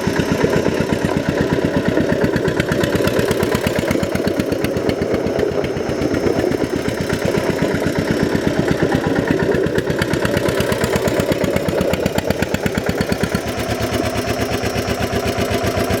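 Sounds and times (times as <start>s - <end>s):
tractor engine chugging: 0.0s - 16.0s.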